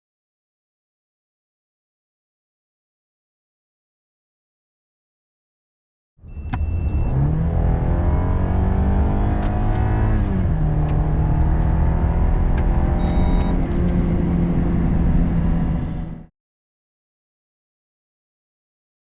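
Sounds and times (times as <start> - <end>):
short electronic beeps: 6.3 - 7.2, 12.9 - 13.6
car engine accelerating hard: 6.3 - 16.3.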